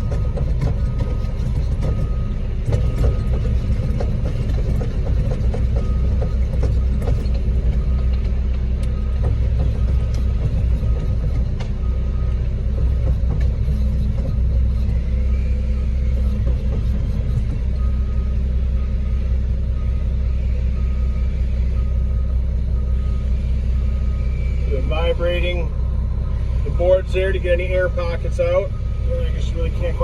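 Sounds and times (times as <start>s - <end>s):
diesel engine rumbling: 0.0s - 30.0s.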